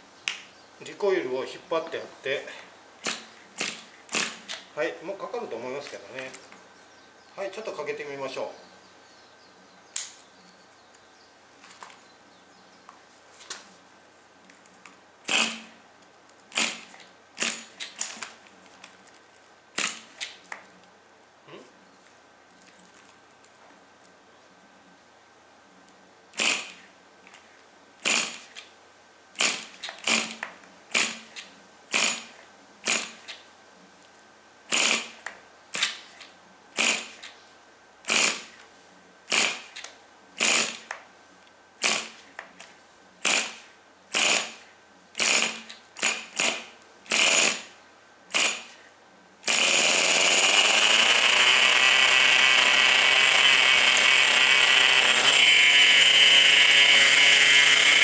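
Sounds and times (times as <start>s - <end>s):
pull-starter whirring: 3.0s - 4.7s, 15.3s - 15.8s, 19.8s - 20.4s, 49.4s - 58.0s
small engine high-pitched buzz: 15.3s - 15.8s, 16.5s - 17.8s, 26.4s - 26.9s, 28.0s - 28.6s, 29.4s - 33.4s, 34.7s - 36.2s, 36.8s - 37.3s, 38.1s - 38.6s, 39.3s - 39.8s, 40.4s - 40.9s, 43.2s - 48.8s, 49.4s - 58.0s.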